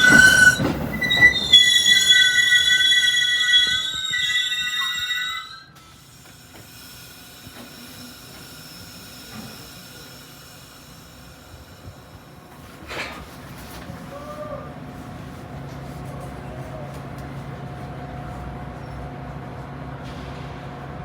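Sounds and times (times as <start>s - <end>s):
train wheels squealing: 0.0s - 12.3s.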